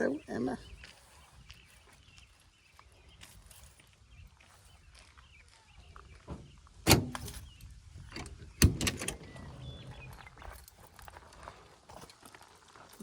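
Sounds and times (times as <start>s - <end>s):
van door latch clunks: 6.9s - 7.4s, 8.1s - 9.4s.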